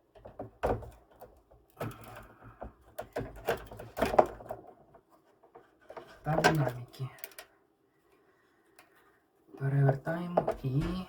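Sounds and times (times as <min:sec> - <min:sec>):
plastic clicks and knocks: 0:00.1 - 0:07.5, 0:09.9 - 0:11.0.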